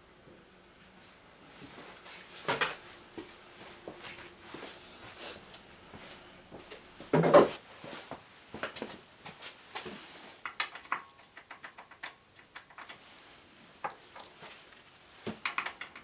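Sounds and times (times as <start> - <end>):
tools clicking and knocking: 10.4 - 13.2, 13.8 - 14.4, 15.3 - 16.0.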